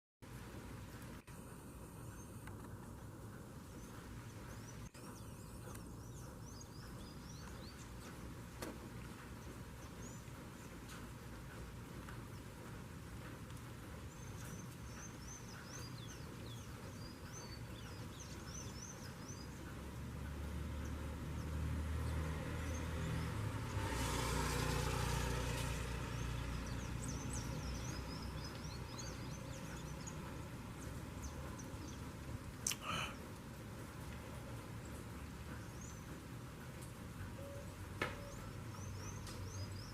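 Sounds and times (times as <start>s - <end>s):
vehicle passing: 18.5s - 32.0s.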